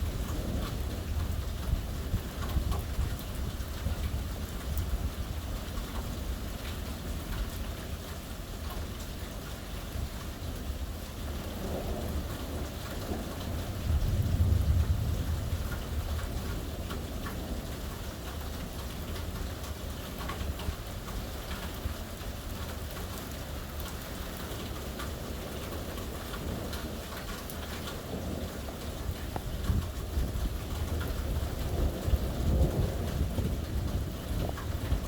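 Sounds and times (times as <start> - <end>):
low thunder rumble: 0.0 - 5.4, 10.6 - 22.0, 24.6 - 35.0
heavy rain pattering: 0.0 - 35.0.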